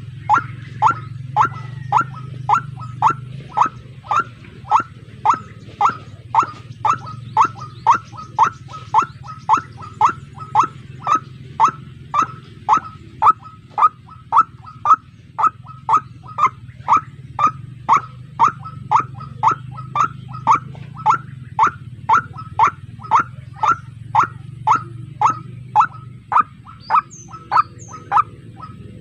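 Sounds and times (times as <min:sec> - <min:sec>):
bird calling sharp repeated notes: 0:00.0 - 0:29.0
steady low hum: 0:00.0 - 0:29.0.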